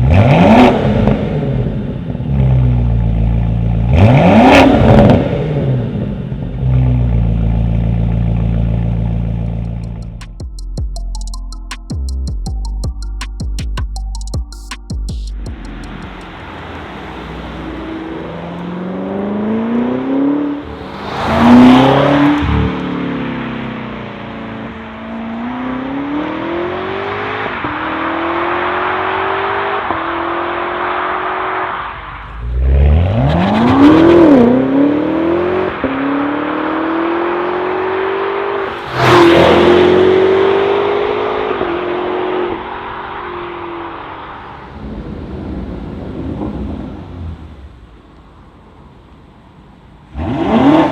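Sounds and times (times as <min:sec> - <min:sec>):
car engine accelerating: 0:00.0 - 0:10.4, 0:15.4 - 0:50.9.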